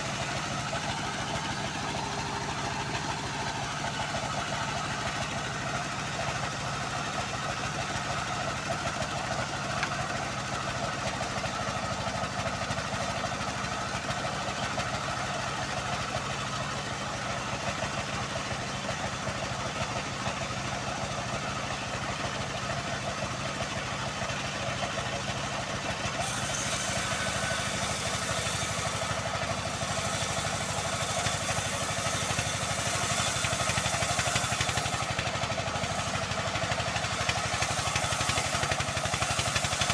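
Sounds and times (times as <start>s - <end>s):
band saw cutting log: 0.0s - 6.5s, 8.7s - 13.9s, 26.1s - 39.9s
sawmill engine droning: 0.0s - 39.9s.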